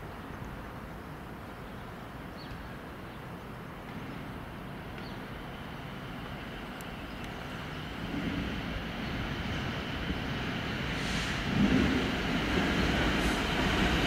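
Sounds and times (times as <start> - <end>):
train rumbling: 3.7 - 14.0.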